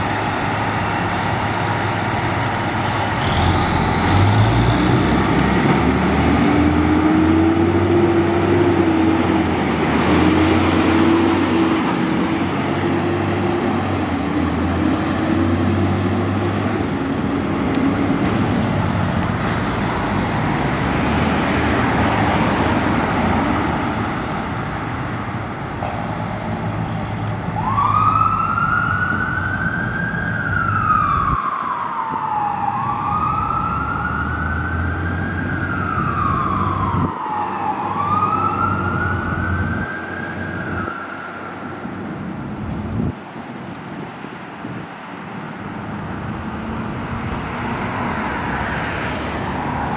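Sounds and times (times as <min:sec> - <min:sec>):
fire truck diesel engine: 0:00.0 - 0:49.9
siren wailing: 0:27.6 - 0:42.5.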